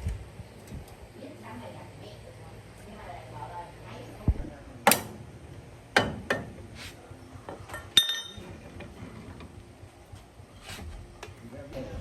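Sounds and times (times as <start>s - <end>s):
metal tools clinking: 7.7s - 8.5s.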